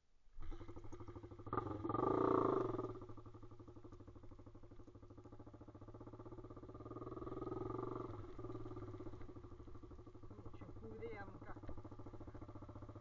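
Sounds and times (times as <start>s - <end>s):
motorcycle engine revving and idling: 0.3s - 13.0s.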